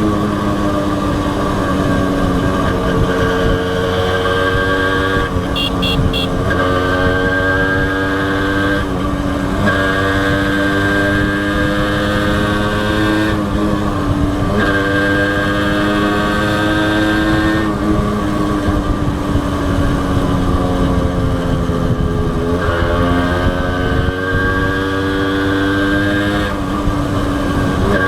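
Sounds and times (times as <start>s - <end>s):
motorcycle engine running: 0.0s - 14.6s.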